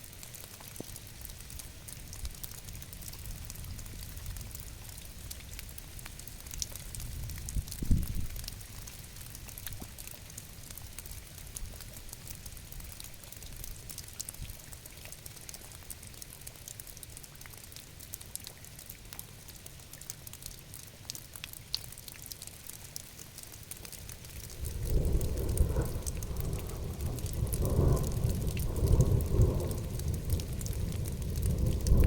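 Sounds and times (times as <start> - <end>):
rain falling steadily: 0.0 - 32.0.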